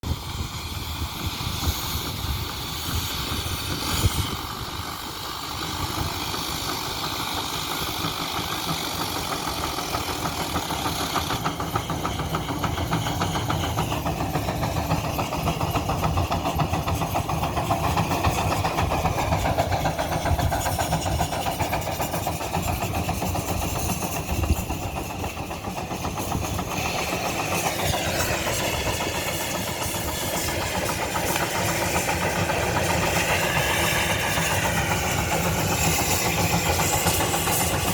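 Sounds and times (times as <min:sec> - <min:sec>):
antique engine running: 0:00.0 - 0:37.9.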